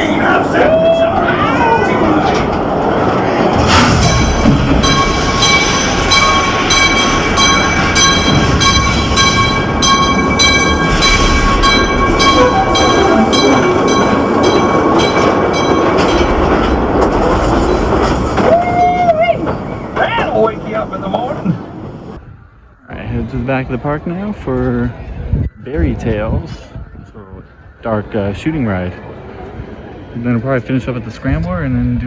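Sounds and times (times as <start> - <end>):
ride train clacking on track: 0.0 - 22.2
steady ringing tone: 3.8 - 18.1.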